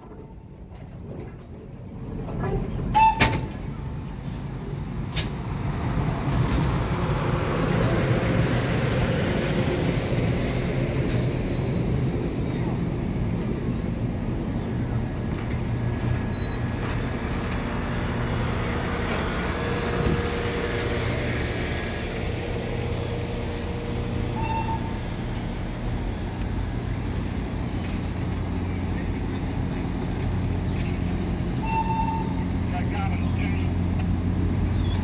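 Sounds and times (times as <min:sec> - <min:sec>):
train wheels rumbling on rails: 0:00.0 - 0:35.0
short squeak: 0:11.4 - 0:12.2, 0:16.2 - 0:18.4, 0:24.3 - 0:25.0.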